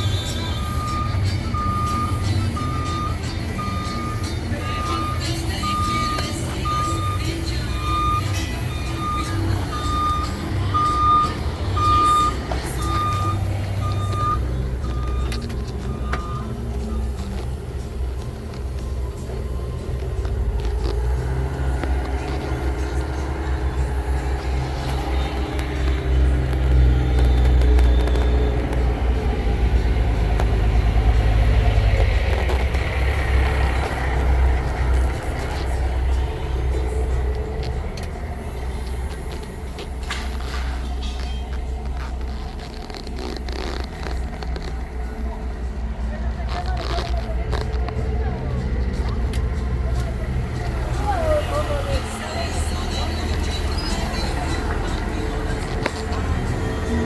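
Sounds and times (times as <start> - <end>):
backup alarm beeping: 0.0 - 17.8
diesel engine running: 0.0 - 57.0.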